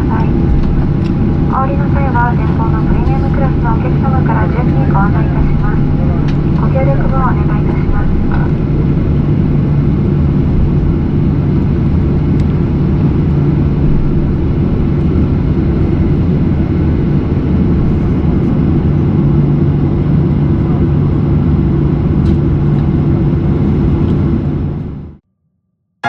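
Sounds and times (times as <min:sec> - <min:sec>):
airliner cabin engine rumble: 0:00.0 - 0:25.2.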